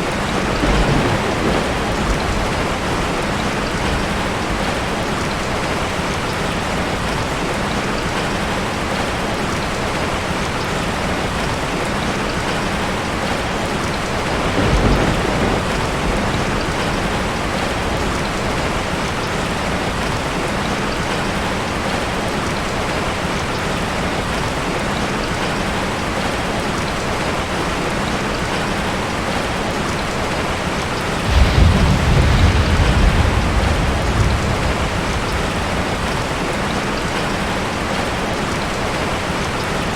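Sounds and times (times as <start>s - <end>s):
thunder rumbling: 0.0s - 6.2s, 14.0s - 20.1s, 31.2s - 38.2s
heavy rain on a tin roof: 0.0s - 39.9s.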